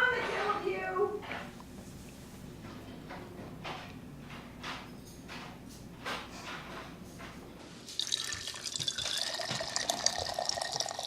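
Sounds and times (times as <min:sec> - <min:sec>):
water running from a kitchen tap: 0:07.9 - 0:11.0.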